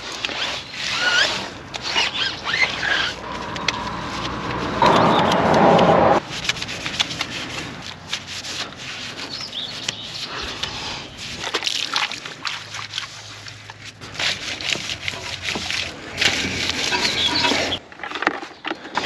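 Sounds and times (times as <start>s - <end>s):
cleaning tool scrubbing car: 0.0s - 17.8s
loud rushing noise: 3.1s - 6.4s.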